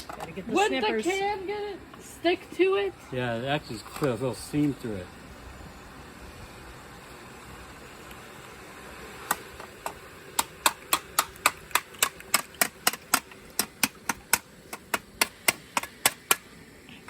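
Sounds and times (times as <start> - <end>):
sharp taps on metal casting: 9.3 - 16.5.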